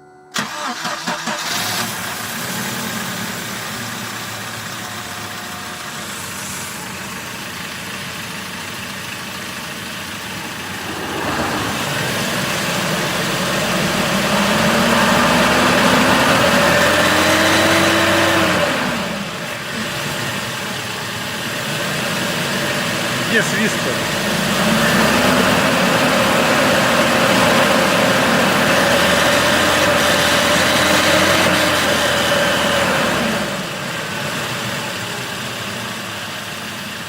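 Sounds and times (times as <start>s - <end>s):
car engine cranking and idling: 0.4s - 2.2s
engine whine rising in pitch: 9.8s - 19.4s.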